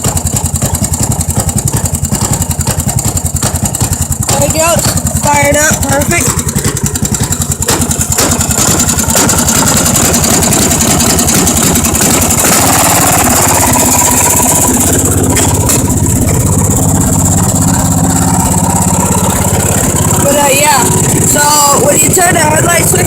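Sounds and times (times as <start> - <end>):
small gasoline engine running: 0.0 - 23.0.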